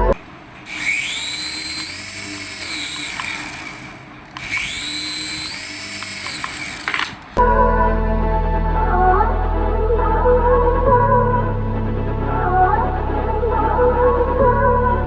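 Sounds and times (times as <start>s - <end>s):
electric toy motor whirring: 0.6s - 7.4s.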